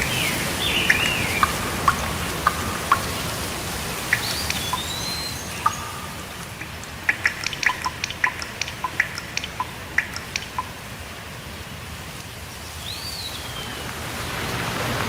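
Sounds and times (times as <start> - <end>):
bird whistled call: 0.0 - 3.3, 4.1 - 6.4, 12.8 - 13.8
steady rain: 0.0 - 15.0
large drops plinking: 0.8 - 10.8.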